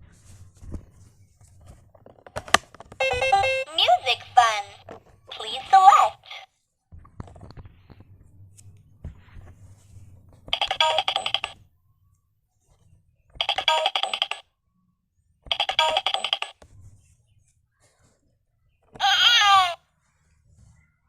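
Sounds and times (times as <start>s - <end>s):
telephone ringing: 3.0s - 6.4s, 10.6s - 11.6s, 13.4s - 14.4s, 15.5s - 16.6s.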